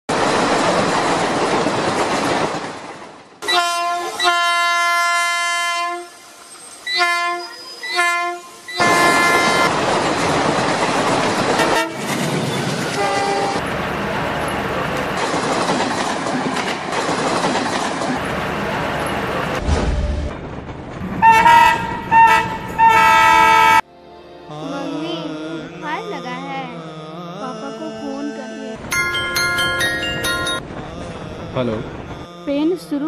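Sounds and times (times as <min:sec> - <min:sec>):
train running: 0:00.1 - 0:23.9, 0:27.4 - 0:33.0
train horn blasts: 0:03.4 - 0:06.2, 0:06.9 - 0:09.7, 0:11.6 - 0:12.1, 0:13.0 - 0:13.6, 0:21.2 - 0:23.9.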